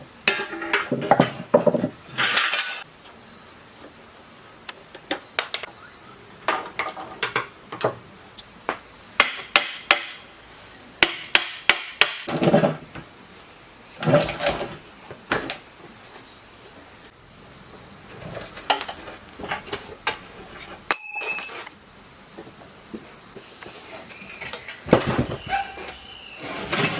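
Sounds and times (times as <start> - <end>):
metallic clinks of hand tools: 20.9 - 21.7.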